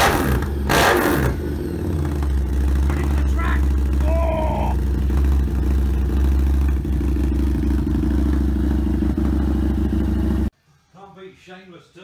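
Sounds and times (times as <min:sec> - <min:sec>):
motorcycle engine idling: 0:01.3 - 0:10.5.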